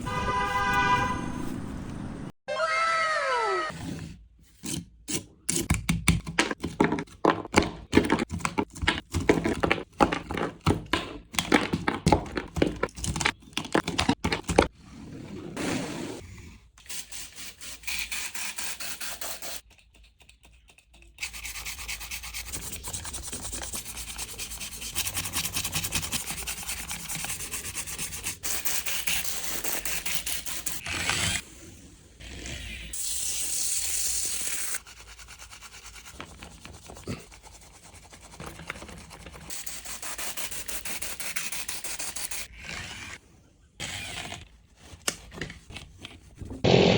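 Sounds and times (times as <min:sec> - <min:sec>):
brush scrubbing a toy: 0:16.8 - 0:30.8, 0:32.8 - 0:42.5.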